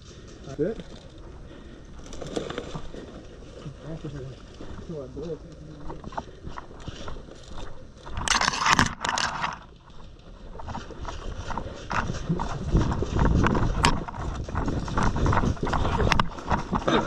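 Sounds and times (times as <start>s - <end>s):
rustling against microphone: 0.0s - 17.0s
uneven footsteps: 0.0s - 17.0s
gear knocking: 10.5s - 17.0s.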